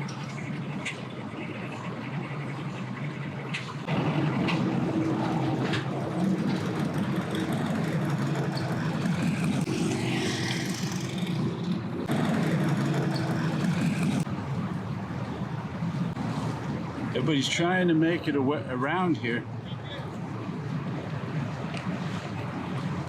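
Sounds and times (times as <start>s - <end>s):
water noise: 0.0s - 23.0s
motor engine humming: 1.2s - 14.3s.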